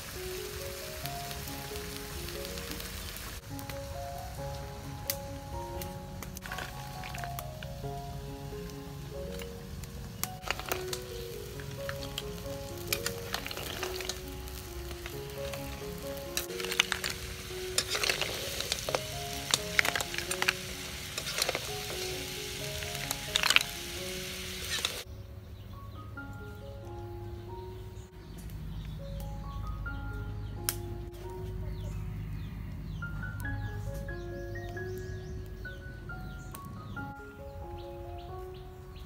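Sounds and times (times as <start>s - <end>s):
snails sizzling in a wok: 0.0s - 25.1s
metal ladle clinking on shells: 16.4s - 20.6s.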